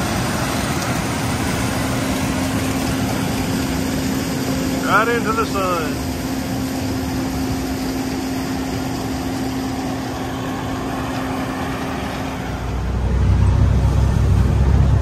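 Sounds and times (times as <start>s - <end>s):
truck engine and road rumble: 0.0s - 15.0s.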